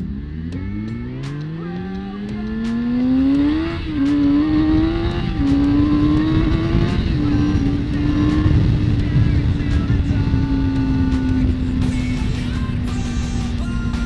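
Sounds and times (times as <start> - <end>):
motorcycle engine accelerating: 0.0 - 14.0
wind noise: 3.3 - 12.9.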